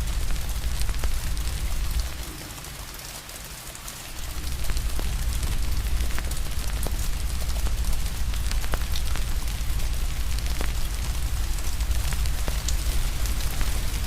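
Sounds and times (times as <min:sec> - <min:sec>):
fire crackling and popping: 0:00.0 - 0:14.0
rain hiss: 0:00.0 - 0:14.0
deep low rumble: 0:04.2 - 0:14.0.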